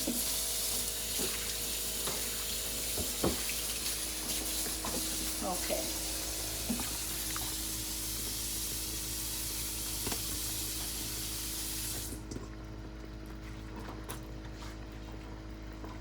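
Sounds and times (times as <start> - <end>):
tap water running into sink: 0.0 - 12.3.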